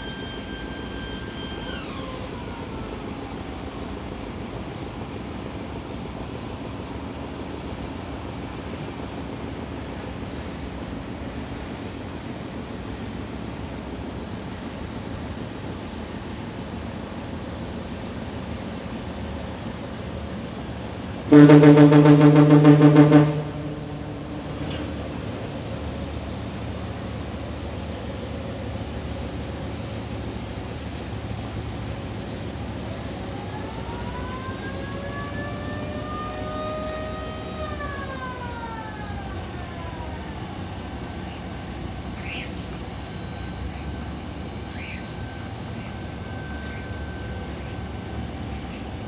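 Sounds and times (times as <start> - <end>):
siren-like wail: 0.0 - 3.7, 21.1 - 27.2, 32.8 - 41.8, 43.0 - 49.0
low rumble: 21.4 - 26.7.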